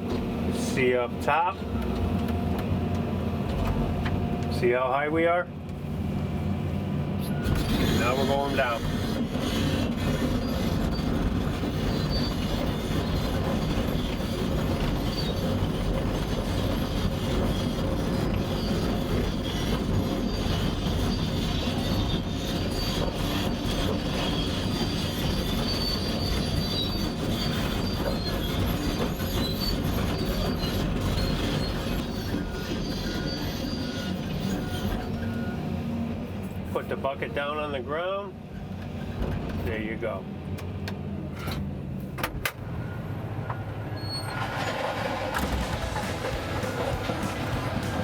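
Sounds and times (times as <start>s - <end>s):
diesel engine running: 0.0s - 37.2s, 40.4s - 48.0s
steel tracks clanking and squealing: 7.2s - 37.8s, 42.8s - 48.0s.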